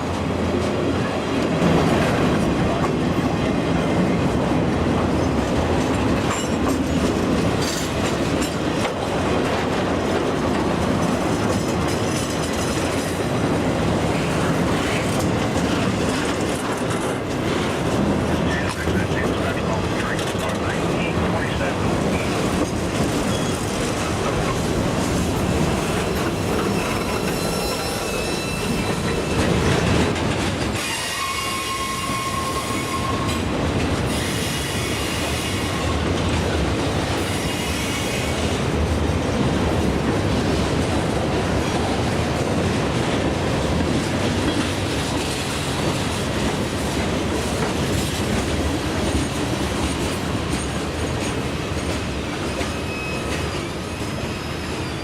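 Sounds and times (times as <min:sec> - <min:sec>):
train wheels clattering on rails: 0:00.0 - 0:55.0
high-pitched wheel squeal: 0:26.7 - 0:29.4, 0:30.8 - 0:33.4, 0:52.7 - 0:55.0.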